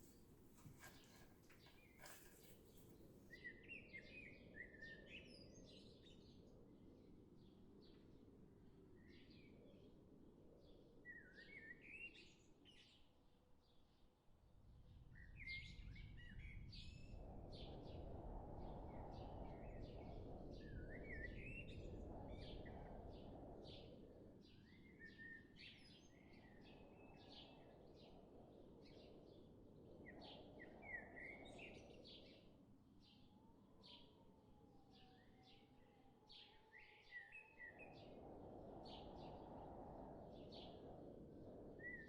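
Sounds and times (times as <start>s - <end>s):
faint birdsong: 0.0s - 4.4s.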